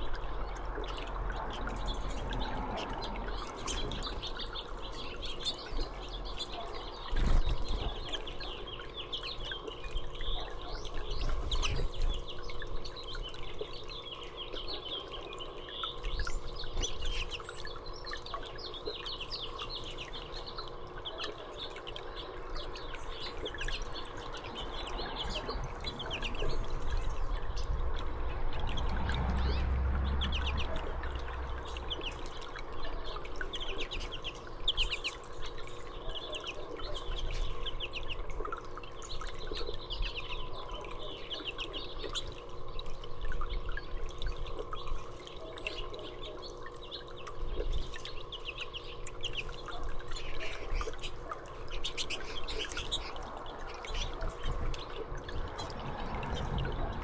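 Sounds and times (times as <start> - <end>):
songbirds chirping: 0.0 - 57.0
low rumble: 24.6 - 32.4, 54.6 - 57.0.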